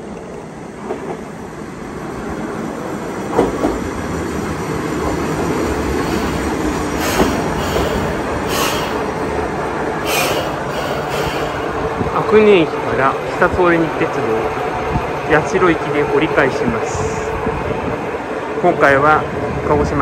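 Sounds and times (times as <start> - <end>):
diesel railcar rumbling: 0.0 - 20.0
wheel and brake squeals: 7.0 - 9.0, 10.1 - 11.7.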